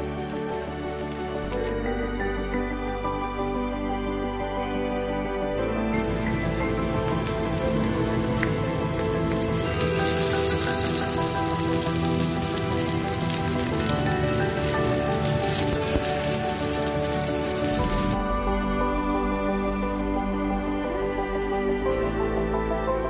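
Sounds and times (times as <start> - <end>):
patties sizzling in oil: 0.0 - 1.7, 6.0 - 18.2
instrumental background music: 0.0 - 23.0.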